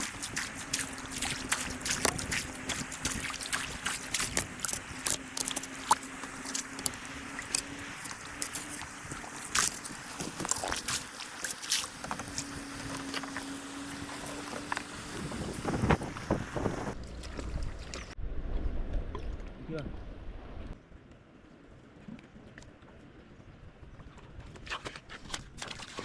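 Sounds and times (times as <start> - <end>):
water trickling and splashing: 0.0 - 18.2.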